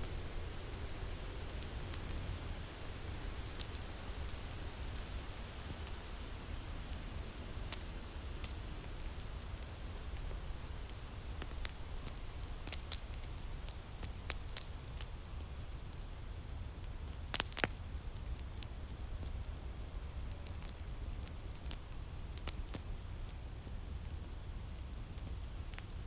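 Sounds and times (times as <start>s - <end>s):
fire crackling and popping: 0.0s - 26.0s.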